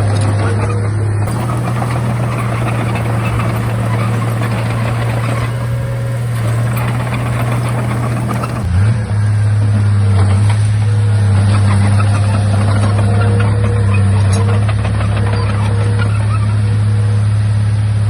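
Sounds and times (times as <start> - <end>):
bulldozer diesel engine droning: 1.3 - 8.7
busy rattling: 1.3 - 8.7.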